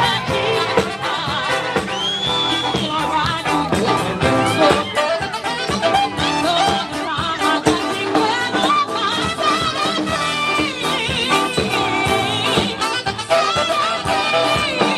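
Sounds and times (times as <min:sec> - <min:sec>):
live band playing: 0:00.0 - 0:14.9
person singing: 0:00.0 - 0:14.9
steady drum beat: 0:00.0 - 0:14.9.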